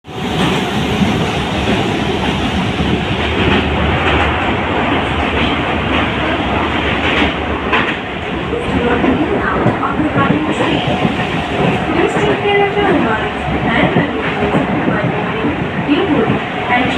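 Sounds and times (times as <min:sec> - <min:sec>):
train wheels rumbling on track: 0:00.0 - 0:16.9
clacks at rail joints: 0:00.4 - 0:16.9.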